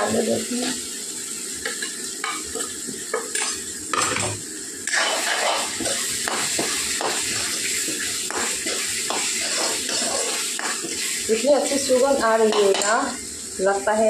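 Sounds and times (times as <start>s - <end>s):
food sizzling in oil: 0.0s - 14.0s
metal spatula scraping a pan: 4.8s - 11.2s.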